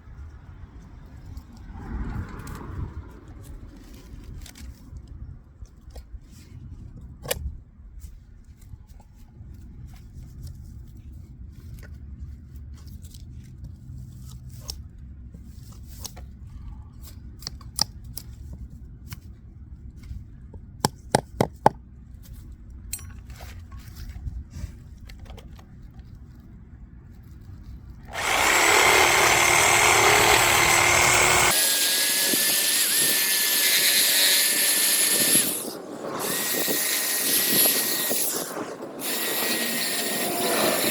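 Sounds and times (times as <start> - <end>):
power tool whining: 28.1 - 40.9.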